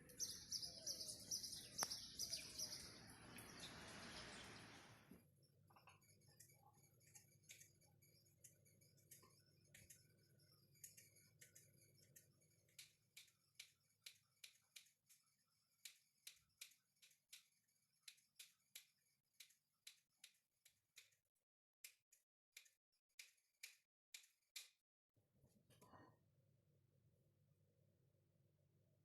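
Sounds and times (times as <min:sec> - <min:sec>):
faint sharp clicks: 0:01.7 - 0:02.4.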